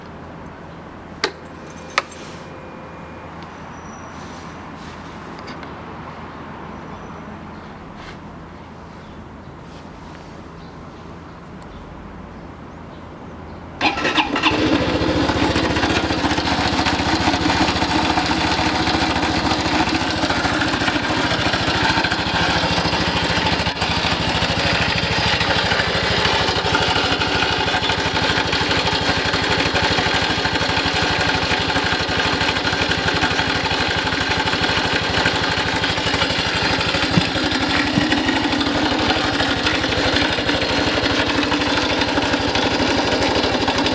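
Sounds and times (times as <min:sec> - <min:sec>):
motorcycle engine idling: 0:13.8 - 0:43.9.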